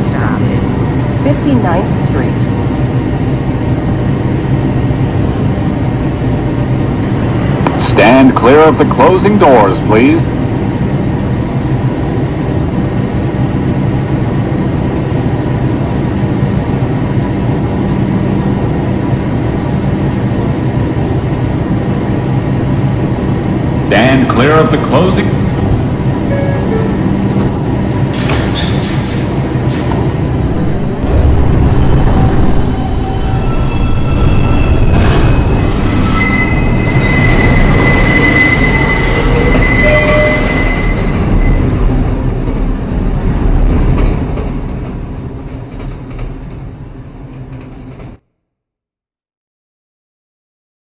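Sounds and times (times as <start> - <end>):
subway train humming: 0.0 - 48.2
steady tones: 18.0 - 45.3
high wheel squeal: 28.0 - 30.1, 31.7 - 41.9.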